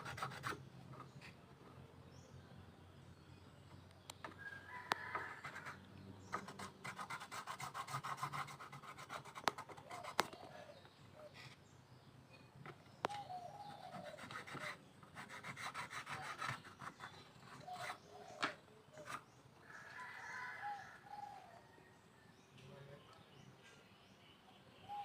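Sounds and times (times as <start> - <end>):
rubbing strokes on wood: 0.0 - 1.4, 5.1 - 10.6, 13.6 - 18.3.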